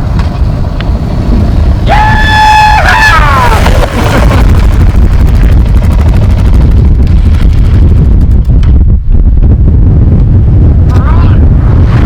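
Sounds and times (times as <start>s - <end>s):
motorcycle engine and road rumble: 0.0s - 12.0s
wind buffeting microphone: 0.0s - 12.0s.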